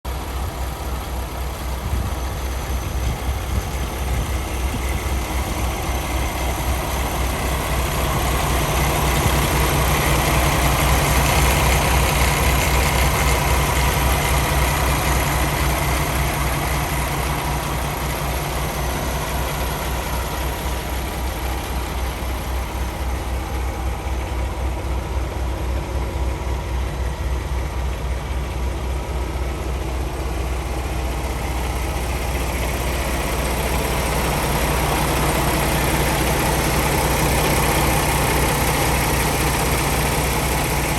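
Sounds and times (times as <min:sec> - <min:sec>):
truck diesel engine idling: 0:00.0 - 0:40.9.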